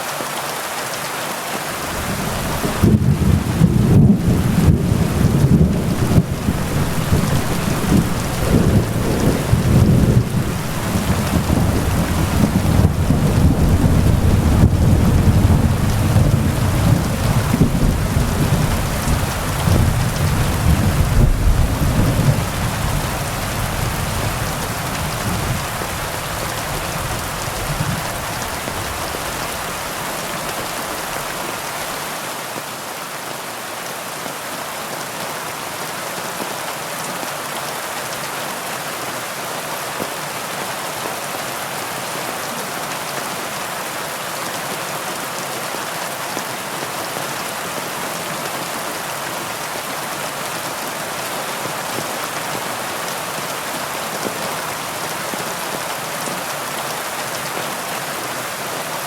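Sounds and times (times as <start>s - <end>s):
heavy rain falling: 0.0s - 59.0s
low rumble of thunder: 2.0s - 29.4s.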